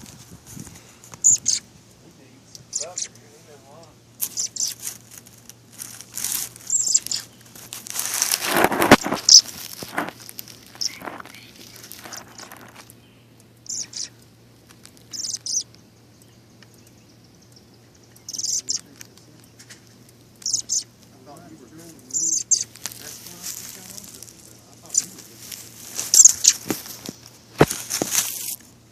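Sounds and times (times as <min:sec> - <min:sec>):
high bird chirps: 0:01.2 - 0:01.7, 0:02.4 - 0:03.3, 0:04.2 - 0:05.3, 0:06.2 - 0:07.8, 0:09.1 - 0:09.6, 0:10.5 - 0:14.4, 0:15.0 - 0:25.4, 0:26.0 - 0:26.7.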